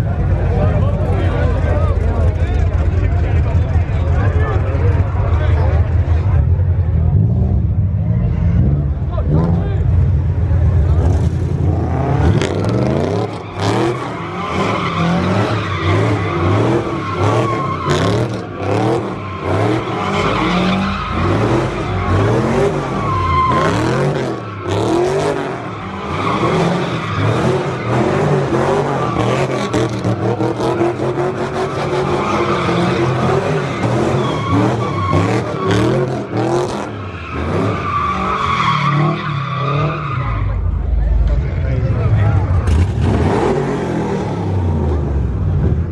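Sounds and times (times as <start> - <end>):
car engine running hard: 0.0 - 45.9
tyres squealing: 12.4 - 40.5.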